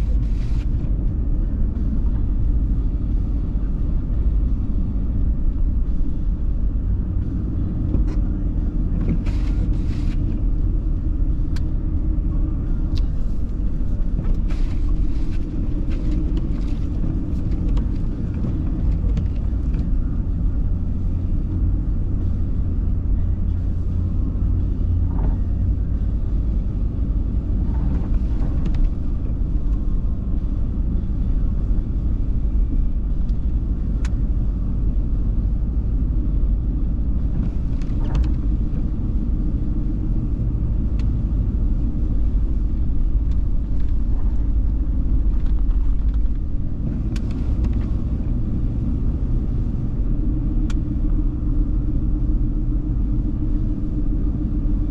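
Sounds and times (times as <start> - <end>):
car engine and road noise: 0.0 - 54.9.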